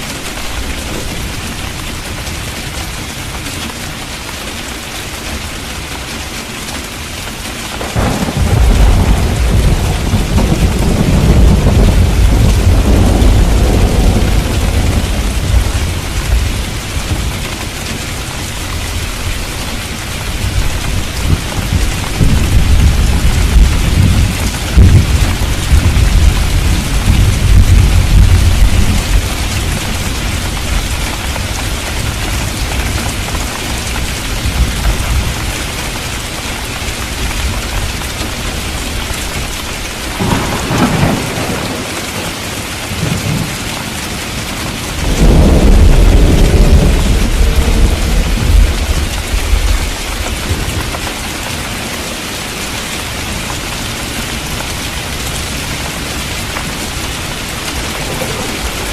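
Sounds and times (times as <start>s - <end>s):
heavy rain: 0.0s - 58.9s
sharp thunder clap: 7.8s - 17.4s, 40.2s - 41.9s, 45.0s - 49.9s
thunder rolling: 7.8s - 17.6s, 20.3s - 33.2s, 40.1s - 43.6s, 45.0s - 51.0s, 55.4s - 58.9s.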